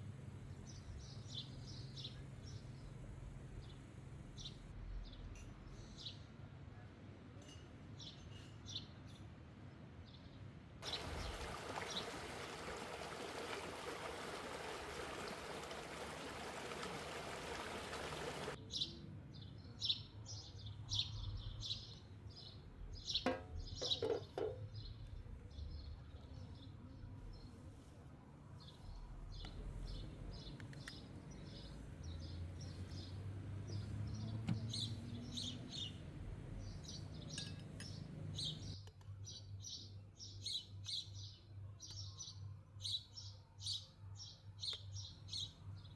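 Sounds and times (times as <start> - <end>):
songbirds chirping: 0.4 - 6.4, 10.1 - 45.9.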